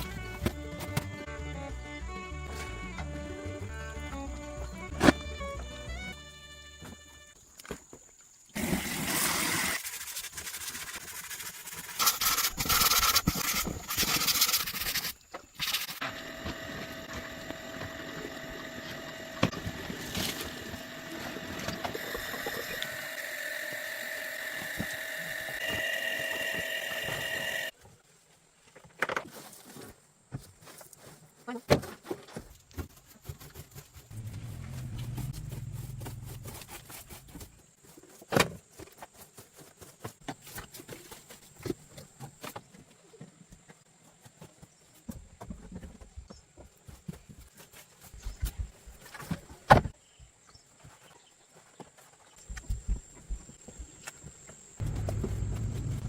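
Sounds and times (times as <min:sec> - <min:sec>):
machine whining: 0:16.0 - 0:27.7, 0:34.1 - 0:37.4, 0:54.8 - 0:56.0
short low hum: 0:34.1 - 0:37.5, 0:54.8 - 0:56.0.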